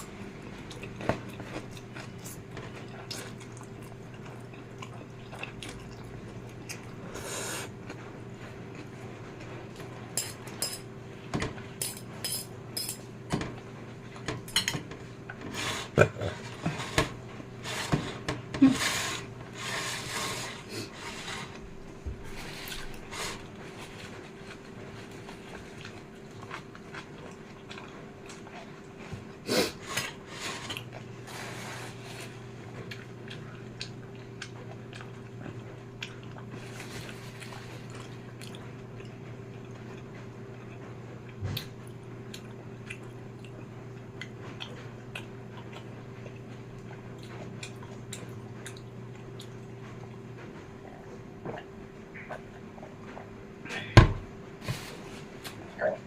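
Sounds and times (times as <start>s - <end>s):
steady low hum: 0.0s - 56.0s
person eating: 0.4s - 8.0s, 15.2s - 21.6s.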